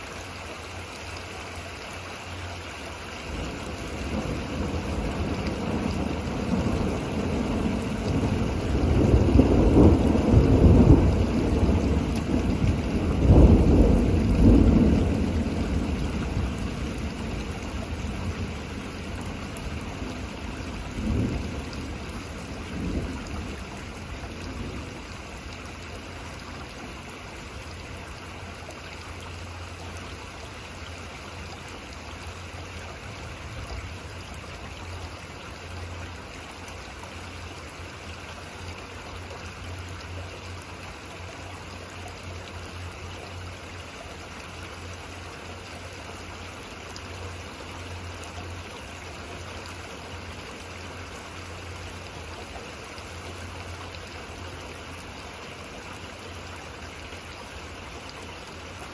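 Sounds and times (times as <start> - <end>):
steady rain: 0.0 - 58.9
thunder rumbling: 3.3 - 25.2.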